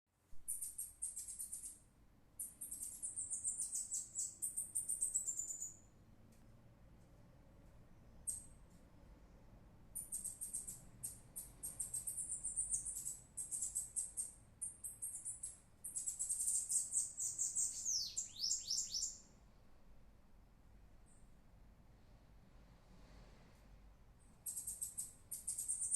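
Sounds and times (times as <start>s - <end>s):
bird singing high thin notes: 15.0s - 19.2s.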